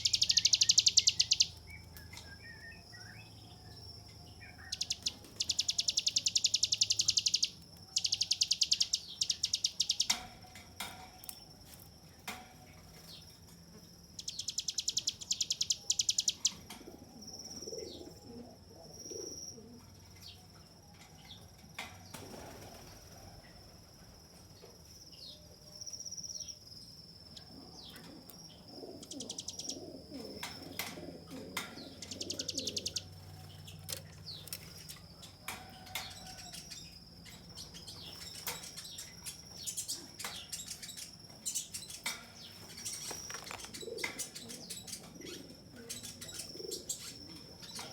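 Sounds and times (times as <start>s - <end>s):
sharp bird chips: 0.0s - 3.2s, 4.6s - 10.4s, 14.2s - 16.6s, 31.6s - 45.0s
lower-pitched bird calls: 0.0s - 10.3s, 14.1s - 16.7s, 27.3s - 47.9s
bird buzzy trills: 0.0s - 10.5s, 12.9s - 18.4s, 26.4s - 47.9s.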